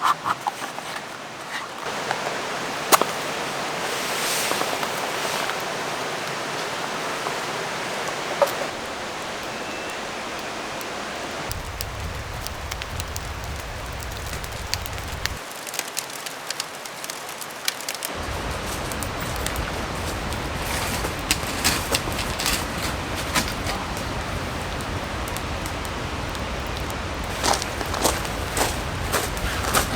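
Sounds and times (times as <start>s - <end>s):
wood fire crackling: 1.2s - 29.9s
sharp popping of fire: 11.4s - 29.9s.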